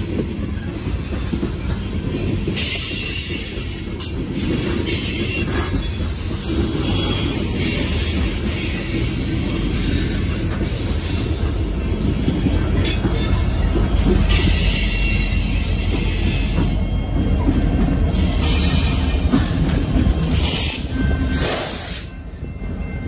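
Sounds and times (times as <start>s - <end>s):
diesel locomotives running: 0.0s - 23.0s
steel wheels rumbling on rail: 0.0s - 23.0s
wheel squeal and hiss: 20.3s - 22.2s.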